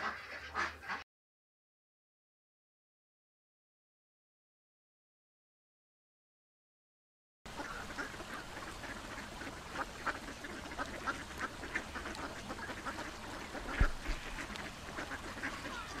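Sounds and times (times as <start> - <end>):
ducks calling: 0.0 - 1.0, 7.5 - 16.0.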